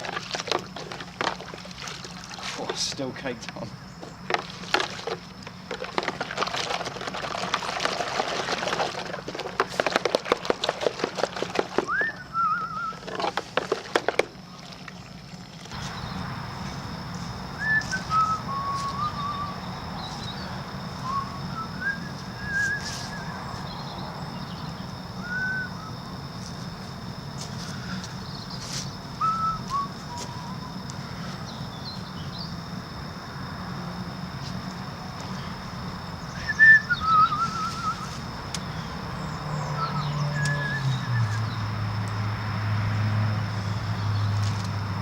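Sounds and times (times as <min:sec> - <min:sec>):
sloshing and squelching in soapy water: 0:00.0 - 0:03.0, 0:04.1 - 0:16.9
bird-like whistled chirps: 0:11.8 - 0:13.1, 0:15.8 - 0:26.6, 0:27.8 - 0:30.9, 0:36.2 - 0:41.6
steady low hum: 0:15.2 - 0:40.2.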